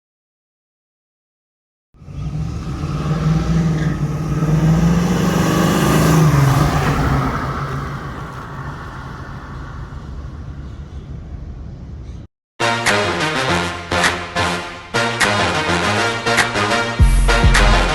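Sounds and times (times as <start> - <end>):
car driving past: 2.0 - 12.0.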